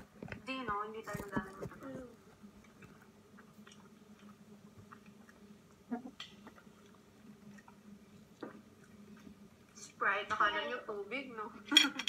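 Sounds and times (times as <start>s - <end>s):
low steady hum: 0.0s - 12.0s
chewing and mouth sounds: 1.2s - 10.0s.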